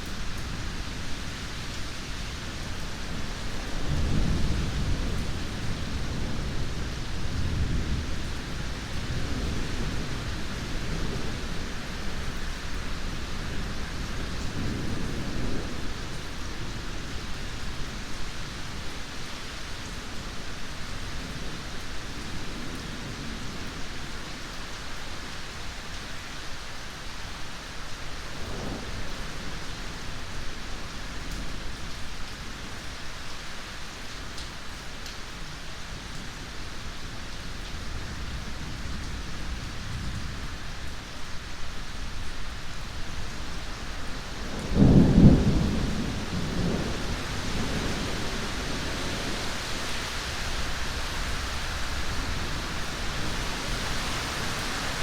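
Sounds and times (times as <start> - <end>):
heavy rain: 0.0 - 55.0
low rolling thunder: 3.0 - 18.2, 43.2 - 55.0.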